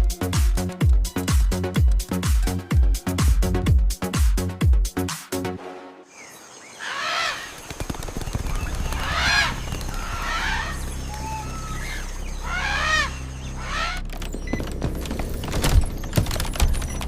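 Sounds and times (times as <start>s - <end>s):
birds calling: 6.1s - 17.0s.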